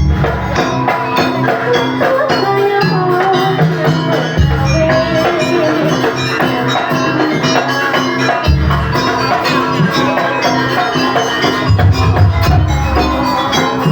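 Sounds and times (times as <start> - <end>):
gamelan ensemble music: 0.0 - 13.9.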